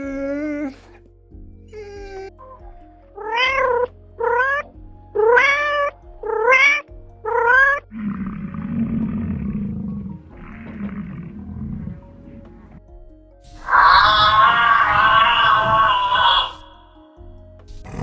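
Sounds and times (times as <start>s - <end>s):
faint background music: 0.0s - 18.0s
cat meowing: 3.2s - 7.8s, 13.5s - 16.8s
low rough animal call: 7.3s - 12.8s, 13.5s - 17.1s.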